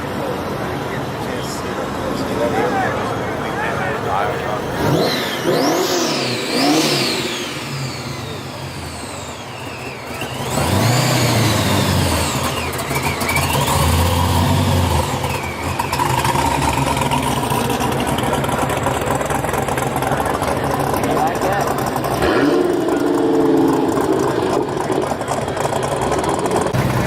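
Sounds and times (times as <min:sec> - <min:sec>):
vehicle engines rumbling: 0:00.0 - 0:27.0
high rising and falling sweeps: 0:04.7 - 0:12.4.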